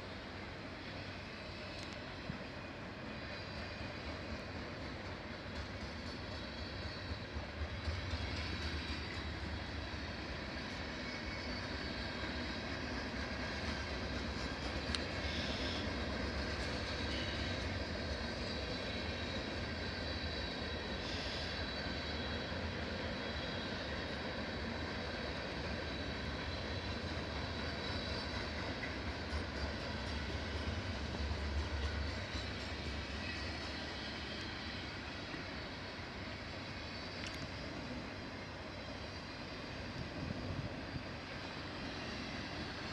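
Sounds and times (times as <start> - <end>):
freight train rolling past: 0.0 - 42.9.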